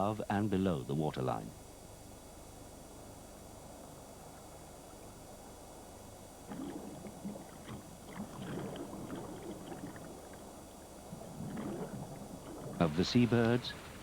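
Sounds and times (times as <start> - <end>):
steady low hiss: 0.0 - 14.0
sea water splashing against rock: 6.5 - 14.0.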